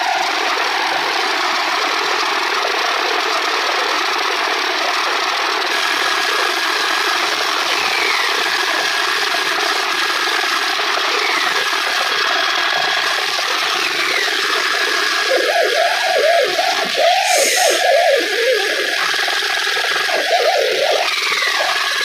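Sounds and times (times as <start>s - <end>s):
eerie steady droning: 13.0s - 22.0s
wavering warbling tones: 13.2s - 22.0s
short falling whistle: 15.3s - 19.0s
faint high tone: 15.4s - 19.0s.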